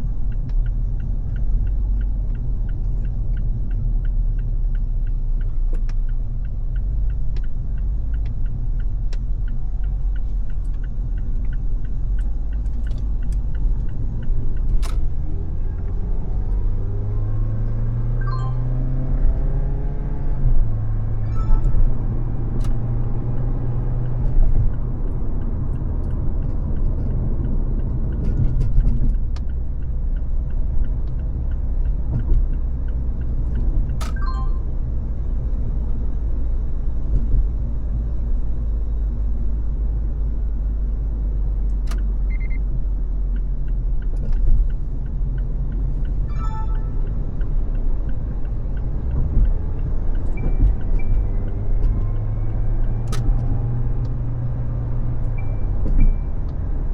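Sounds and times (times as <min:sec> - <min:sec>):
road and engine noise: 0:00.0 - 0:56.9
engine pitch climbing: 0:06.5 - 0:28.2, 0:43.4 - 0:56.9.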